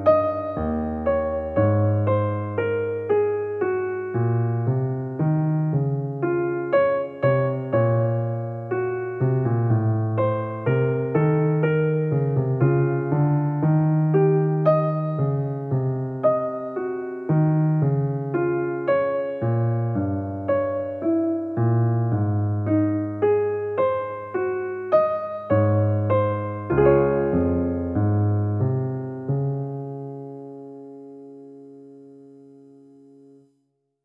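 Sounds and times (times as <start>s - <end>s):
piano-like keyboard music: 0.0s - 33.5s
bass line: 25.5s - 29.6s.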